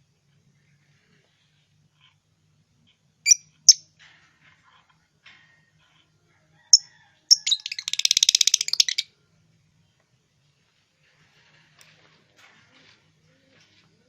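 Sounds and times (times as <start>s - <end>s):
bird shrill calls: 3.3s - 3.8s, 6.8s - 9.0s
fast repeated bird chirps: 3.3s - 3.8s, 6.8s - 9.0s.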